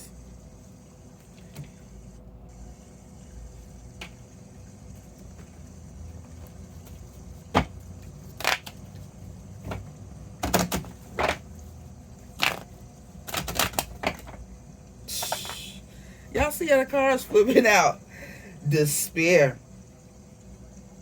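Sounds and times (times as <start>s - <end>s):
cards being shuffled: 6.2s - 14.4s.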